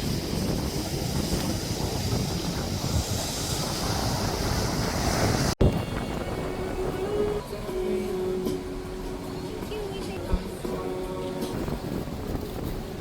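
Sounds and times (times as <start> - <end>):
loud low rushing noise: 0.0 - 8.0.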